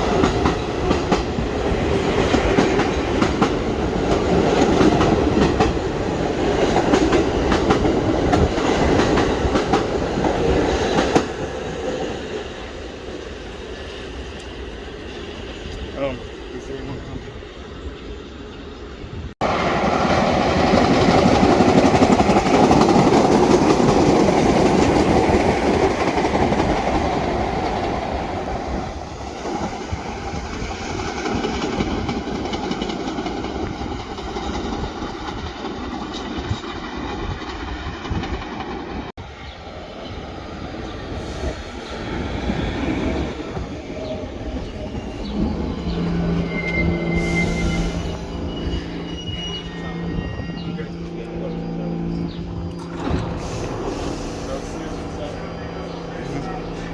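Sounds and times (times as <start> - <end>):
subway train wheels clattering: 0.0 - 17.3, 19.2 - 56.9
train squealing: 20.3 - 56.9.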